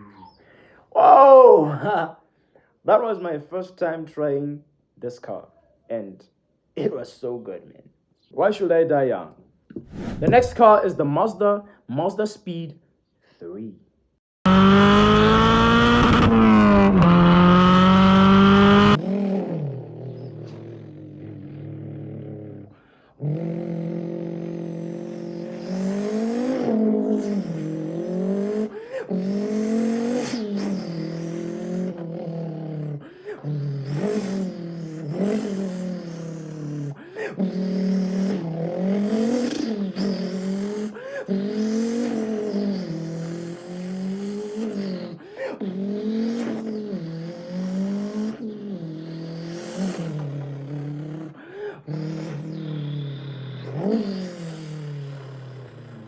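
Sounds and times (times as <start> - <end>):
man imitating engine by mouth: 0.0 - 2.1, 9.7 - 10.8, 14.5 - 56.0.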